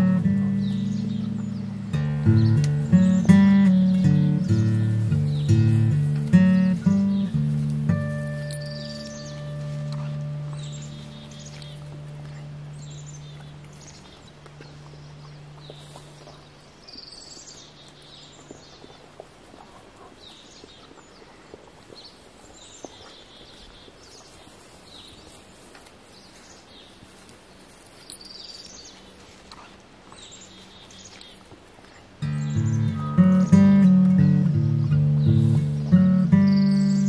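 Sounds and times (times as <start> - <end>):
low steady hum: 0.0 - 20.1
birds singing: 0.0 - 37.0.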